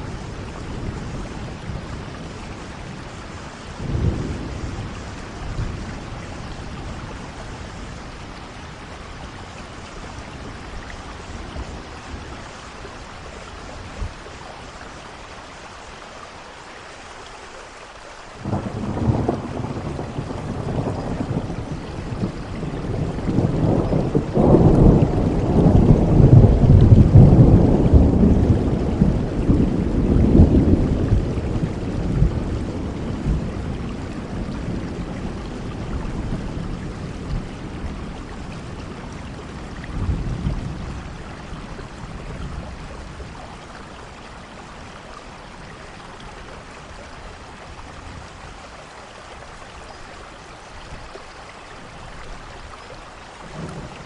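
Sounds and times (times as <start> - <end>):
rolling thunder rumble: 0.0 - 14.3, 18.4 - 45.0, 53.4 - 54.0
steady rain falling: 0.0 - 54.0.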